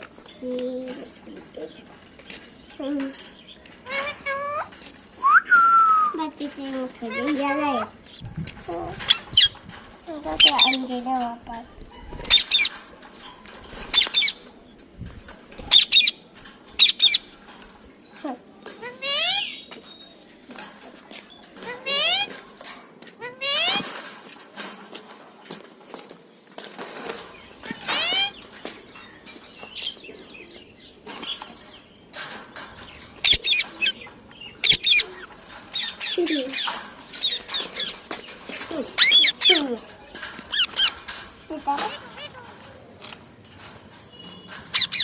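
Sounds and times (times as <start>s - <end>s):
parrot chirps and squawks: 3.8s - 4.7s, 18.8s - 19.6s, 21.6s - 22.3s, 23.2s - 23.9s, 27.8s - 28.4s, 34.6s - 38.0s, 39.0s - 39.6s, 40.5s - 41.0s, 44.7s - 45.0s.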